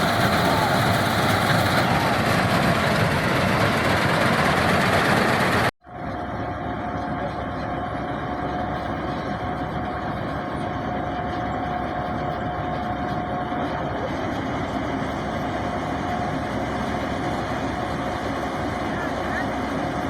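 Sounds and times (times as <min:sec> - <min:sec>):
combine harvester running: 0:00.0 - 0:20.0
steady machinery whine: 0:00.0 - 0:20.0.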